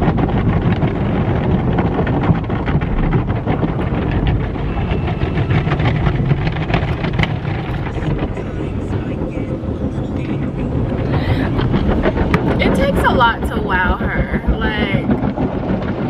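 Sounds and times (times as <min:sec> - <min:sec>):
car wash water rushing: 0:00.0 - 0:16.0
water patters on car body: 0:00.0 - 0:16.0.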